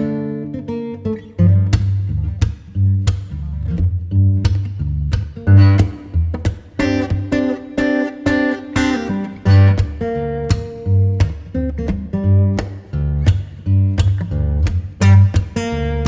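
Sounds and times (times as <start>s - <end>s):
low bass notes: 1.3s - 7.5s, 9.1s - 16.0s
acoustic guitar strumming: 5.3s - 16.0s.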